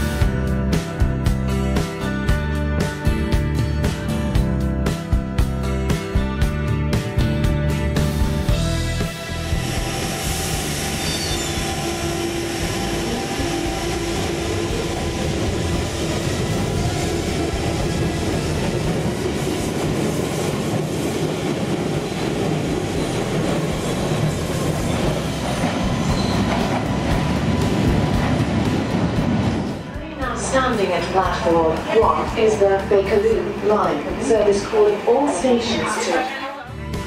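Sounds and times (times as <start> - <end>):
train wheels rumbling on rails: 8.5 - 35.6.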